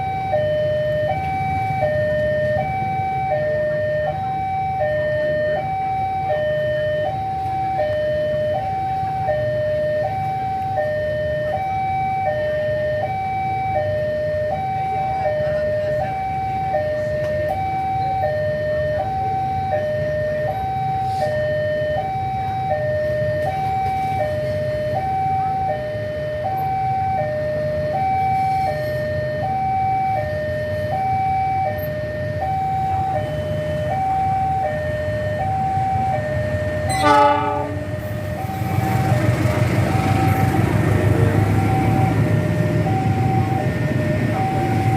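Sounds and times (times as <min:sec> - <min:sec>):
level crossing two-tone alarm: 0:00.0 - 0:39.3, 0:41.2 - 0:44.9
train horn blast: 0:36.9 - 0:38.1.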